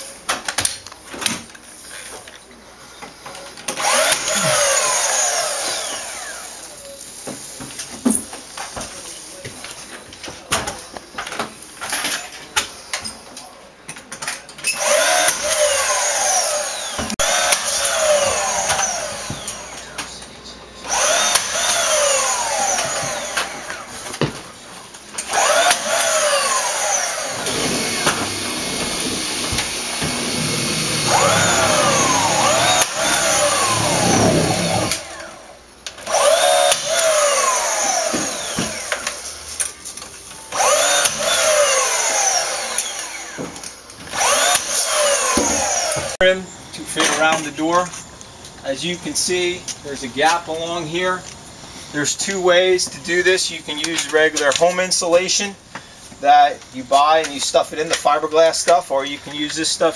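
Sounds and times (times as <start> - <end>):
power drill whining: 3.7 - 6.8, 14.7 - 20.2, 20.8 - 24.4, 25.2 - 39.7, 40.4 - 46.3.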